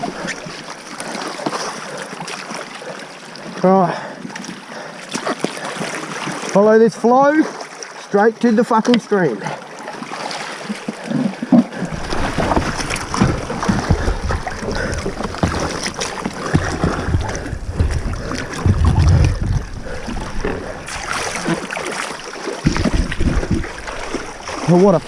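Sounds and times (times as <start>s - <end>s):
river water splashing around boat: 0.0s - 25.0s
irregular knocks: 11.5s - 20.6s
wind rumble on microphone: 16.5s - 20.9s.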